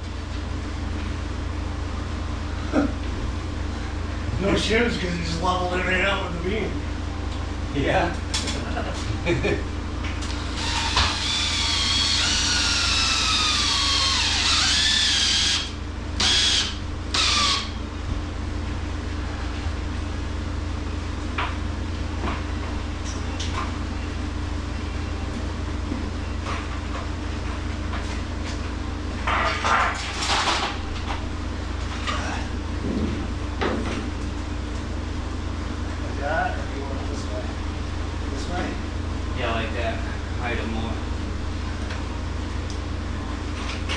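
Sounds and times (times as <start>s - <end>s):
power drill driving screws: 10.3s - 17.8s.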